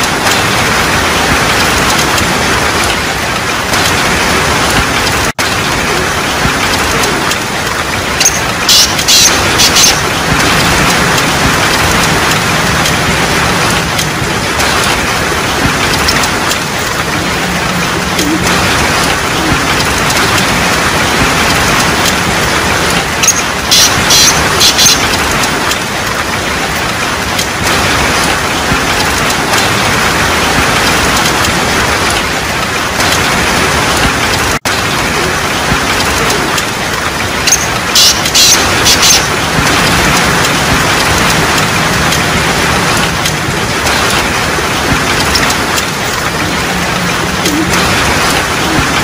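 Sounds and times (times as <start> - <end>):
heavy rain on pavement: 0.0 - 49.0.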